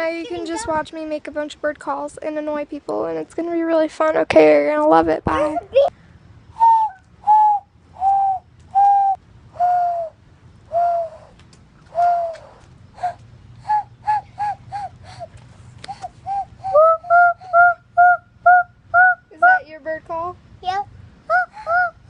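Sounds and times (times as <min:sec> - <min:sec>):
person whistling dove-like hoots: 0:06.6 - 0:15.3, 0:15.9 - 0:19.2.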